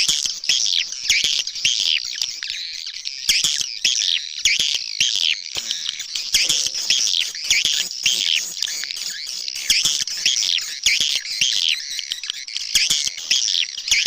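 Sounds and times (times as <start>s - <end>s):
swiftlets twittering: 5.6s - 14.0s.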